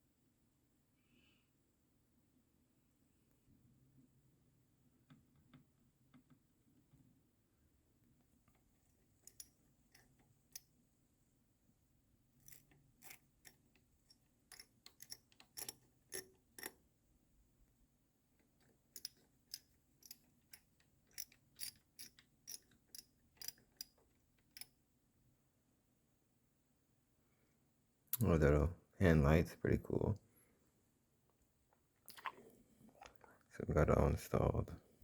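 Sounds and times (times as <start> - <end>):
small hardware clicking: 9.2 - 10.7, 12.4 - 16.8, 18.6 - 24.8.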